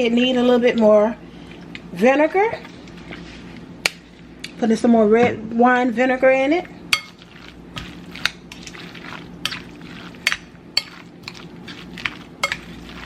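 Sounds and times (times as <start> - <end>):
soft wet salad mixing: 0.0 - 4.8, 6.1 - 13.0.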